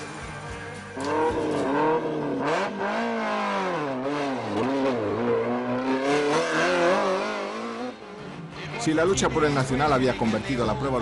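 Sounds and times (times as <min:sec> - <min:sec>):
car engine revving hard: 0:01.0 - 0:08.4.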